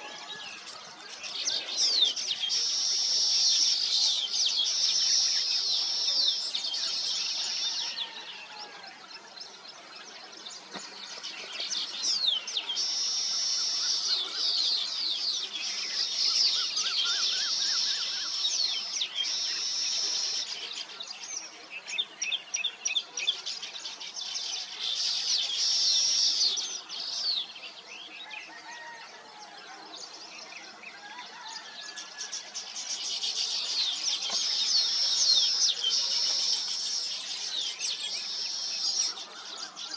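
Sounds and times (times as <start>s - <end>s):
weaver birds chirping: 0.0s - 39.9s.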